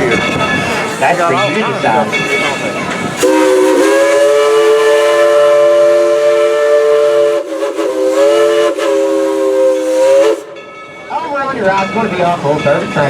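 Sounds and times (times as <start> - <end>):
steam whistle chord: 3.2 - 10.6.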